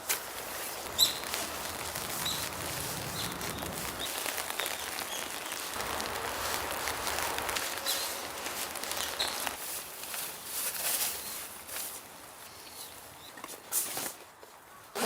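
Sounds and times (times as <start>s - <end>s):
steady rain: 0.0s - 10.9s.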